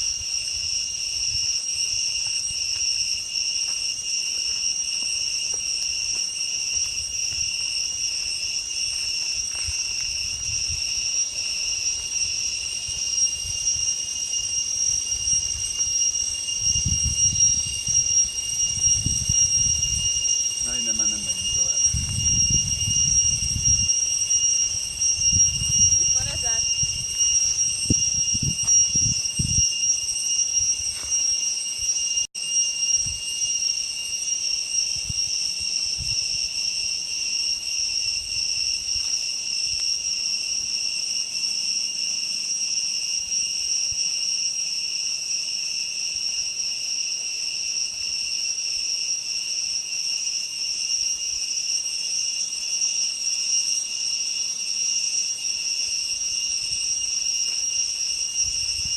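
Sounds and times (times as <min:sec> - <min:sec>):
cicadas singing shrill whine: 0:00.0 - 0:58.9.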